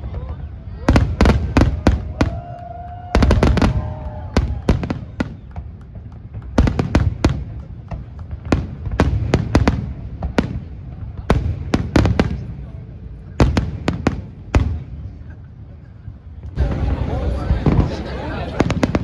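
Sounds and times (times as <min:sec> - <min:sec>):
fireworks bangs: 0:16.6 - 0:19.0.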